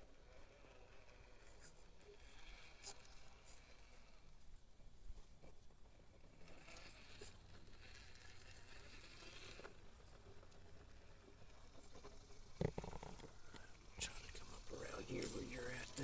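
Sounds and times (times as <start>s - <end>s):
faint background hiss: 8.8s - 16.0s.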